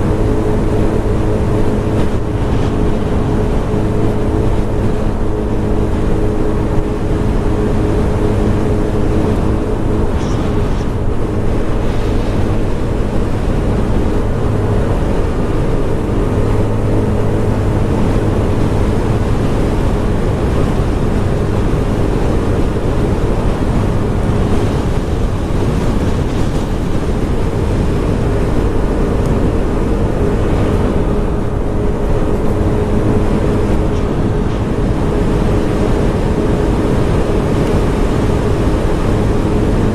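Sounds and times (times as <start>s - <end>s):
scooter engine running: 0.0s - 39.9s
wind rushing over microphone: 0.0s - 39.9s.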